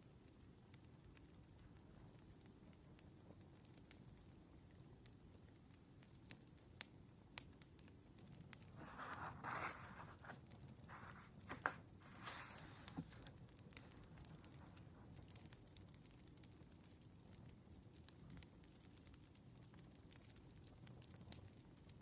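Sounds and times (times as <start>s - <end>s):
wood fire crackling: 0.0s - 22.0s
paper rustling: 8.8s - 13.3s.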